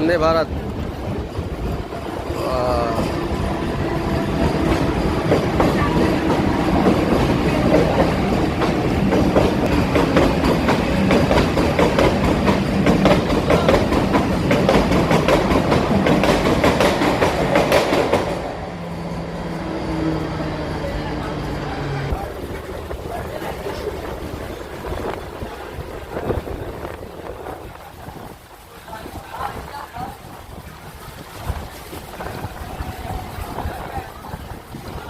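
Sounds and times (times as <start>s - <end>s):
wheels clacking over rail joints: 0.0s - 18.7s
train passing at speed: 0.0s - 35.0s.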